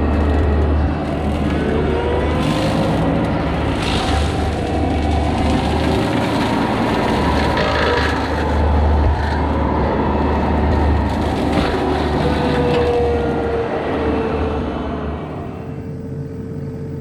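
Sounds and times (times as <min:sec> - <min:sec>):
brush crackling as it is cut: 0:00.0 - 0:13.2
small excavator engine running: 0:00.0 - 0:17.0.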